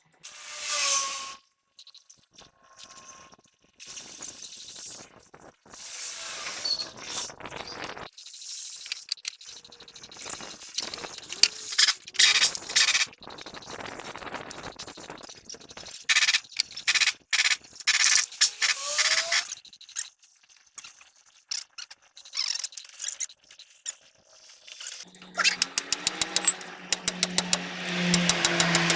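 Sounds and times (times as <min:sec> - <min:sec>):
metal scraping and clinking: 0:25.1 - 0:28.9
short squeaks: 0:25.1 - 0:28.9.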